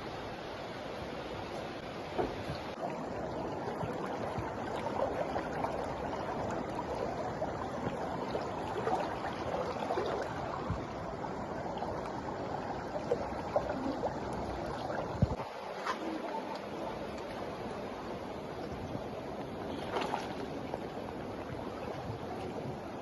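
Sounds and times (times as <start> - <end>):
floodwater rushing: 0.0 - 23.0
small splashes and knocks: 19.7 - 20.6.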